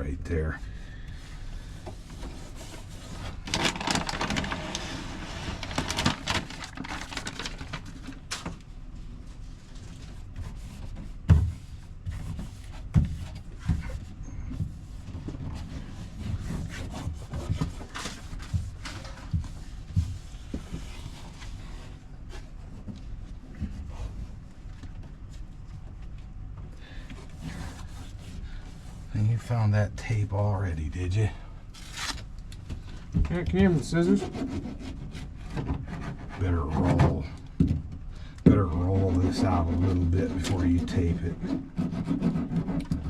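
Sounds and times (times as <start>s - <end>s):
sheet rustling and rubbing: 1.9s - 8.3s, 8.9s - 26.4s.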